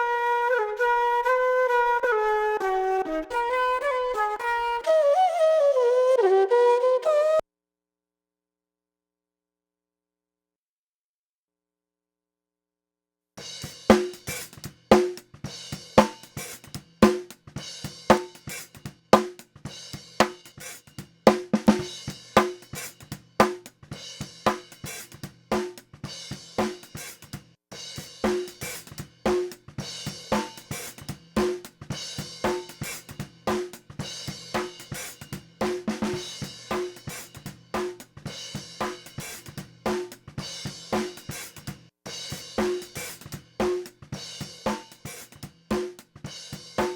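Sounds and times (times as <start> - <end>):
drum kit beat: 13.4 - 46.9.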